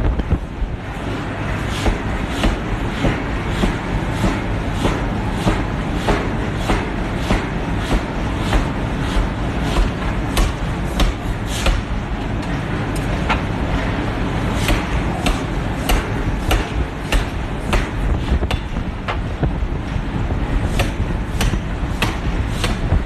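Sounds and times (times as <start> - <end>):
low factory rumble: 0.0 - 23.0
forging hammer striking steel: 1.8 - 12.0, 14.6 - 19.2, 20.7 - 23.0.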